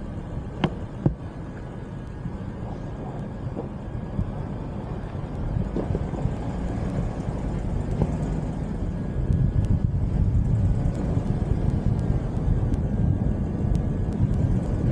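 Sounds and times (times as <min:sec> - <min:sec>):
car driving rumble: 0:00.0 - 0:14.9
faint ticks: 0:09.3 - 0:09.9, 0:10.8 - 0:12.9, 0:13.7 - 0:14.7.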